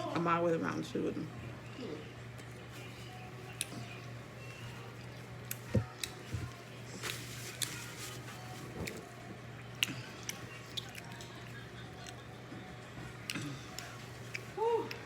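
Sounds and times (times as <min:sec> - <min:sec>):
chewing and biting: 0:08.8 - 0:12.3.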